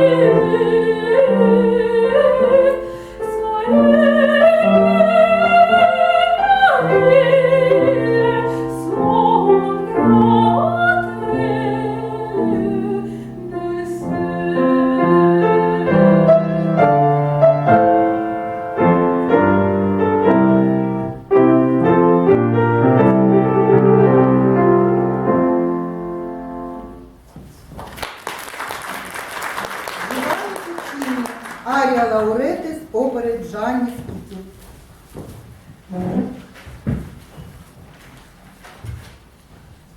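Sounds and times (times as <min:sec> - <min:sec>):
woman singing operatically: 0:00.0 - 0:16.8
piano accompaniment: 0:00.0 - 0:27.8
audience applause: 0:27.8 - 0:32.1.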